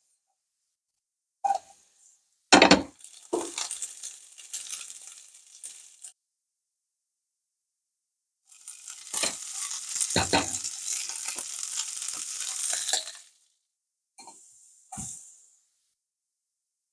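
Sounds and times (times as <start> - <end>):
clinking knocks: 2.6 - 2.9.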